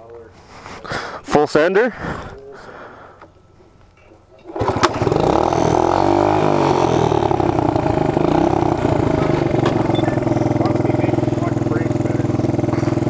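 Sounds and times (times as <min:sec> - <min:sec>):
small engine running hard: 0:04.5 - 0:13.0.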